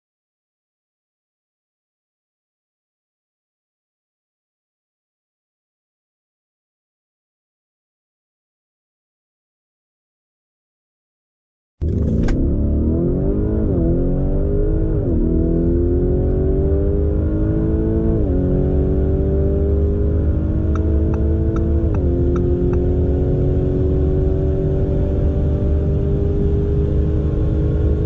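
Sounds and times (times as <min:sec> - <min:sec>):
car engine accelerating: 0:11.8 - 0:28.0.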